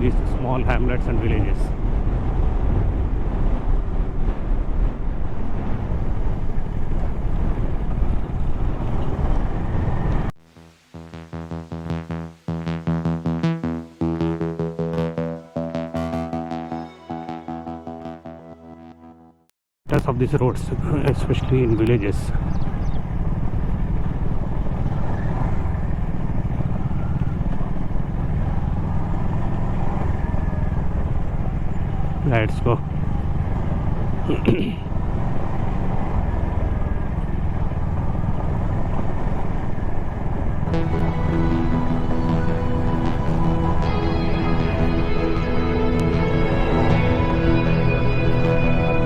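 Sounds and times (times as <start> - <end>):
wind buffeting microphone: 1.6 - 10.3.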